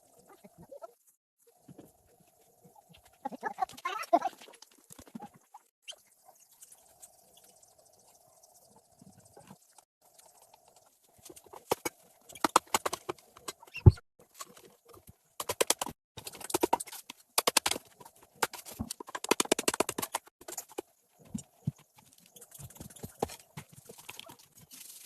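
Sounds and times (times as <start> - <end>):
rapid clicking and knocking: 15.4 - 20.8.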